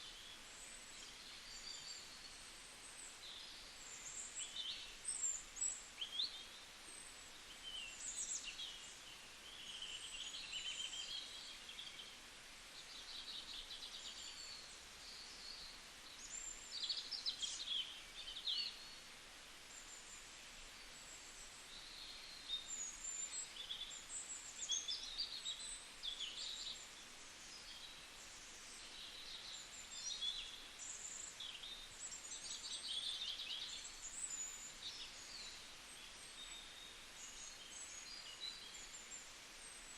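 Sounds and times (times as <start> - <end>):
faint steady hiss: 0.0 - 39.9.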